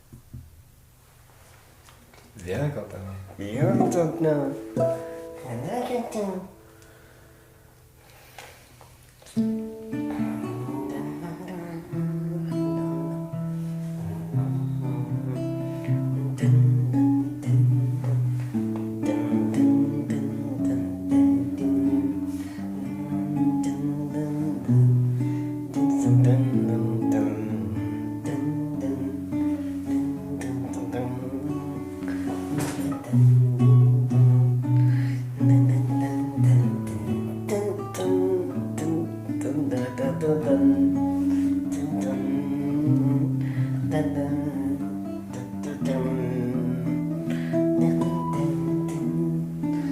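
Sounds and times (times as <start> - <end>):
guitar music: 3.1 - 8.3, 9.2 - 49.9.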